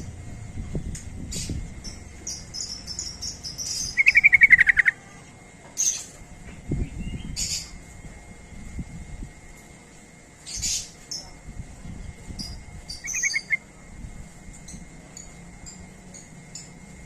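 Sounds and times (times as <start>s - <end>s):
bird rattling trill: 1.2s - 5.0s, 12.3s - 13.6s
bird chirping: 1.3s - 5.0s, 12.4s - 13.6s.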